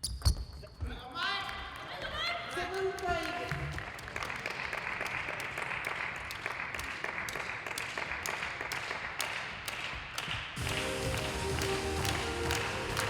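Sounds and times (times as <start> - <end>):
audience applauding: 3.2 - 13.0
music: 10.6 - 13.0.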